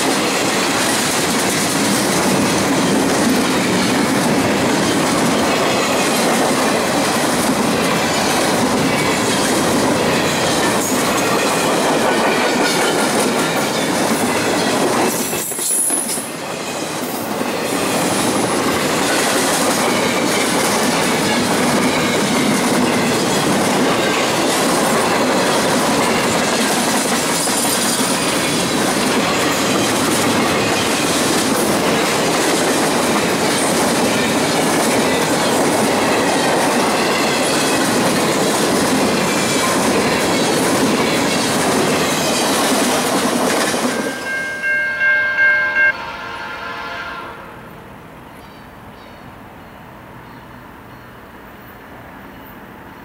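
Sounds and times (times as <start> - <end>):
clickety-clack over rail joints: 0.0 - 44.5
freight train wheels rattling: 0.0 - 45.9
locomotive horn blasts: 44.1 - 47.6.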